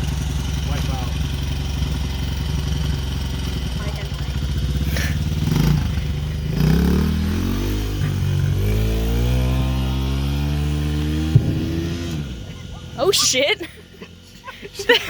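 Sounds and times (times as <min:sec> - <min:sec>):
dirt bike engine revving: 0:02.4 - 0:13.6.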